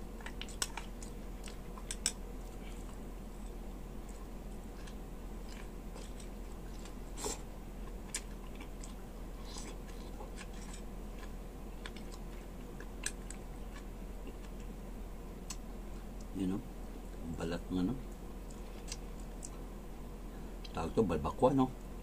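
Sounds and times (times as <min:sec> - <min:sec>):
chewing crunchy greens: 0:00.0 - 0:14.8, 0:18.0 - 0:19.7.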